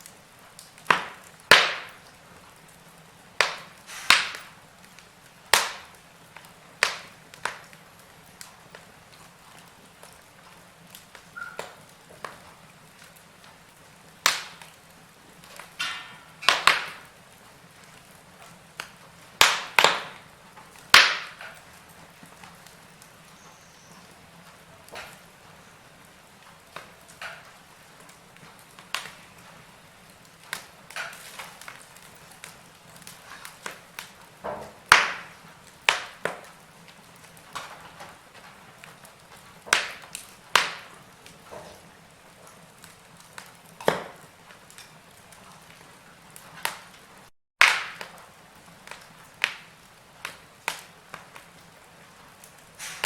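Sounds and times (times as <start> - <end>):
faint steady hiss: 0.0 - 47.3
wood fire crackling and popping: 0.0 - 53.0.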